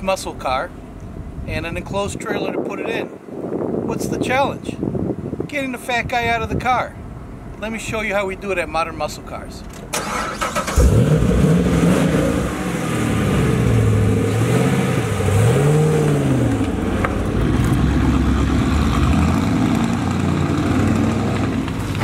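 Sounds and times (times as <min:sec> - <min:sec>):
car engine revving: 0:10.0 - 0:22.0.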